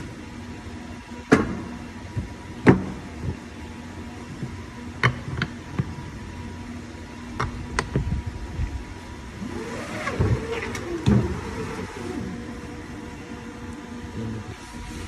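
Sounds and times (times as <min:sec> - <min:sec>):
workshop machinery humming: 0:00.0 - 0:15.0
sharp clicks and knocks: 0:04.4 - 0:05.9.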